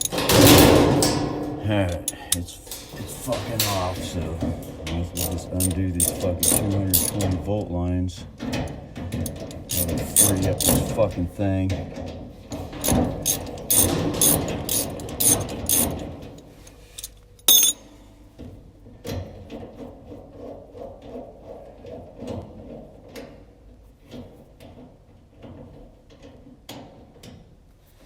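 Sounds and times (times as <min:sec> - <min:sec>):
hand tool clicking loosening screws: 0:00.0 - 0:04.5, 0:05.1 - 0:07.4, 0:09.1 - 0:11.0, 0:12.8 - 0:16.0, 0:16.6 - 0:17.8
handling clatter: 0:00.0 - 0:17.9.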